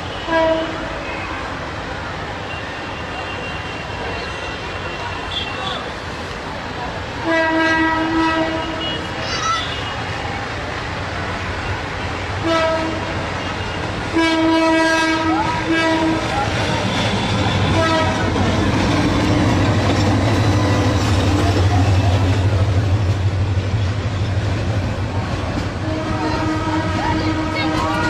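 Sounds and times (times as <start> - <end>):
train rumbling past: 0.0 - 28.0
locomotive horn blasts: 0.1 - 1.2, 7.2 - 9.0, 12.4 - 18.4, 25.8 - 28.0.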